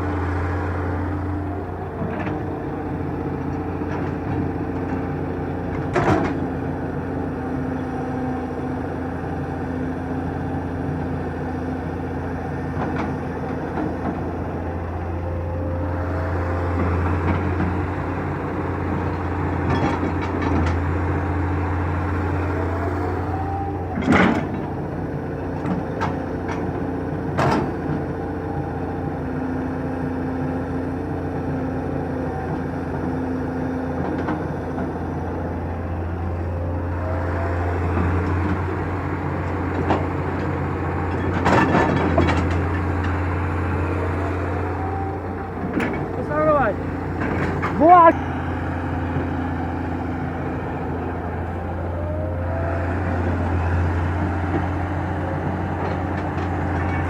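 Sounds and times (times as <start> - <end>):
diesel engine running under load: 0.0 - 57.0
hydraulic whines: 12.7 - 25.4, 34.8 - 57.0.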